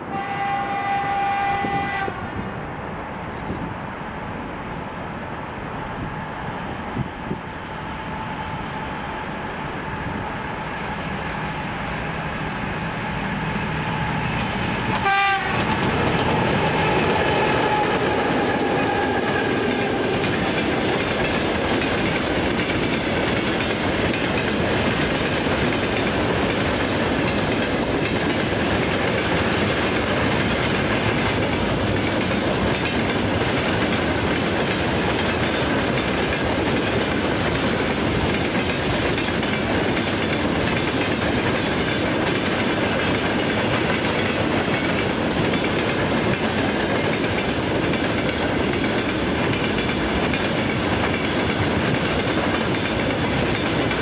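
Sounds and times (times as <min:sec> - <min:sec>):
train horn blast: 0:00.0 - 0:02.4, 0:14.9 - 0:20.7
train wheels rumbling on rails: 0:00.0 - 0:54.0.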